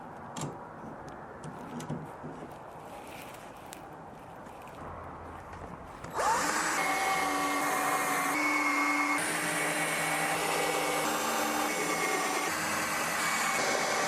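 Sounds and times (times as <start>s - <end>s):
electric motor whine: 6.1s - 14.0s.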